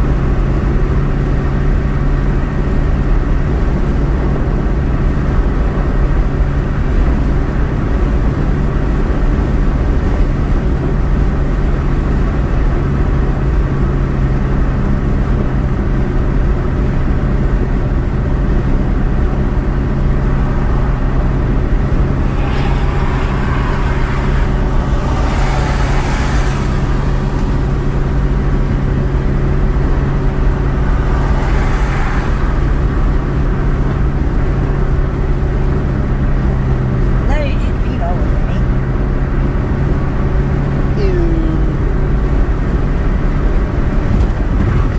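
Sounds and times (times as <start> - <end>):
car engine and road noise: 0.0 - 44.9
rushing hiss: 20.2 - 29.2, 30.1 - 33.7.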